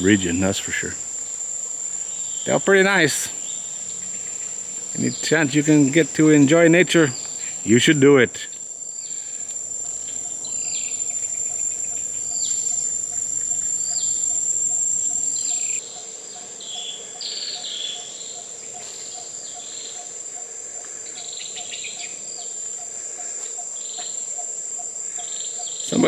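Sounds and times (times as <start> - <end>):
bird falling calls: 0.0 - 1.1, 2.0 - 15.8
insects shrilling: 0.0 - 26.0.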